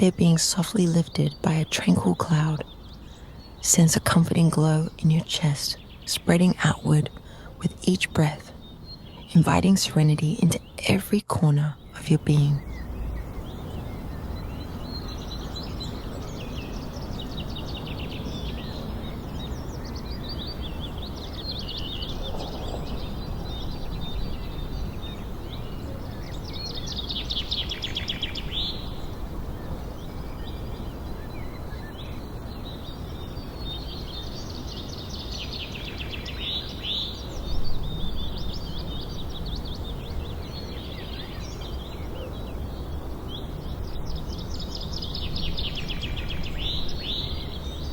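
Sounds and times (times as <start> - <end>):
birds chirping and trilling: 0.0 - 47.9
low background hiss: 0.0 - 47.9.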